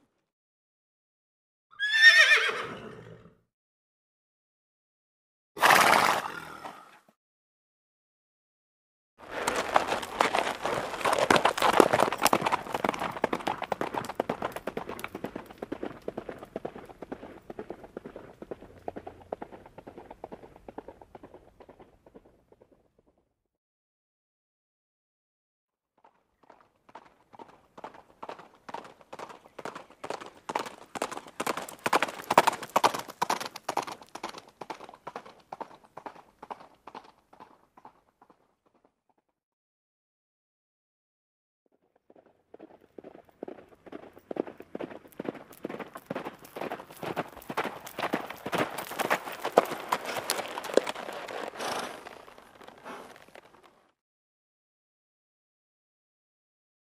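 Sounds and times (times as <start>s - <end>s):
horse hooves clattering: 9.2s - 23.2s, 26.0s - 38.9s, 42.0s - 53.8s.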